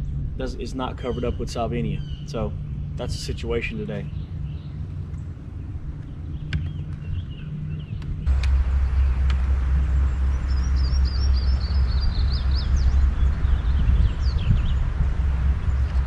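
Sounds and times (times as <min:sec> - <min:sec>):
small birds chirping: 0:00.0 - 0:16.0
wind rumbling on microphone: 0:00.0 - 0:16.0.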